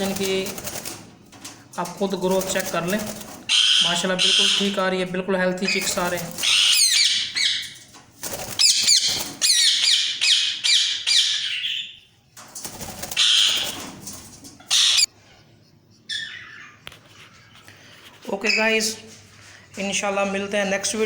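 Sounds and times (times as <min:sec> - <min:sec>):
parrots squawking: 0:03.5 - 0:04.8, 0:05.6 - 0:07.8, 0:08.4 - 0:12.0, 0:13.0 - 0:13.8, 0:14.6 - 0:15.1, 0:16.0 - 0:16.8.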